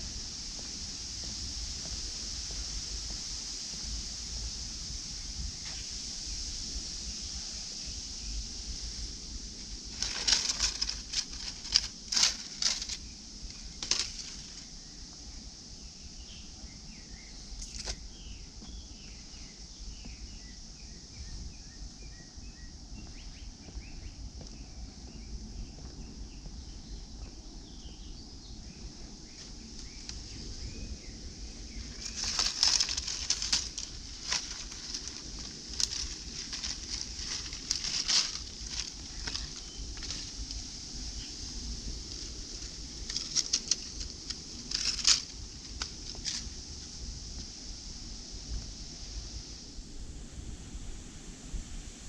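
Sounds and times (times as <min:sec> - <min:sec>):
sharp rustling clicks: 0:09.9 - 0:13.0, 0:13.8 - 0:14.6, 0:31.9 - 0:40.6, 0:42.1 - 0:46.5.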